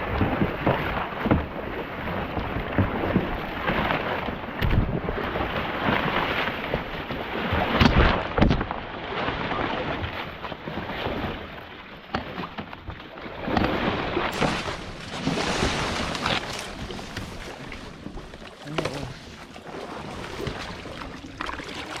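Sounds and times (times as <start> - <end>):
wind rumbling on microphone: 0.0 - 11.6.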